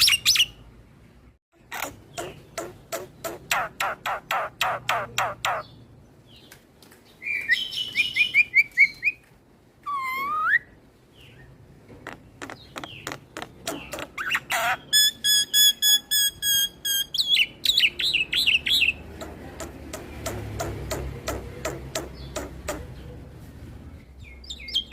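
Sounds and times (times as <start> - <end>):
bird singing varied song: 1.6 - 23.2, 24.0 - 24.9.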